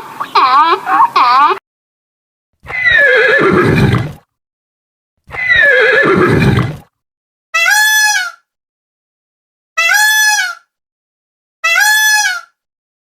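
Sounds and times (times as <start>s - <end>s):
high steady animal call: 2.6s - 4.2s, 5.3s - 6.6s, 9.8s - 10.6s, 11.6s - 12.6s
horse whinnying: 2.6s - 4.2s, 5.3s - 6.8s.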